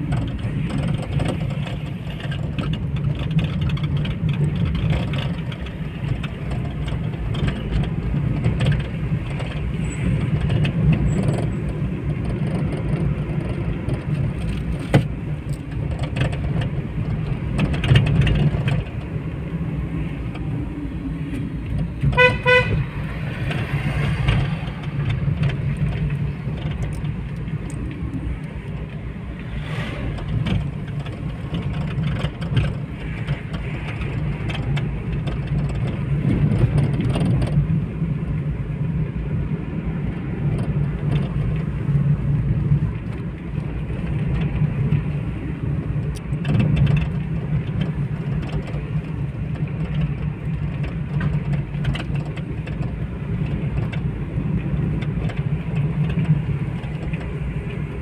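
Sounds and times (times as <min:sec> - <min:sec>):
road traffic rumble: 0:00.0 - 0:58.0
vehicle horn beeps: 0:22.0 - 0:23.0.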